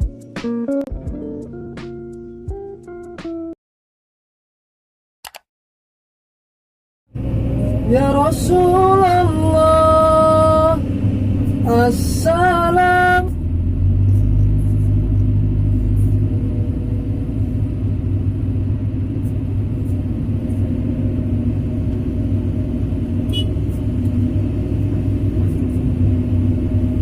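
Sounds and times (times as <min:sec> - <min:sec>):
excavator diesel engine drone: 0:07.2 - 0:27.0.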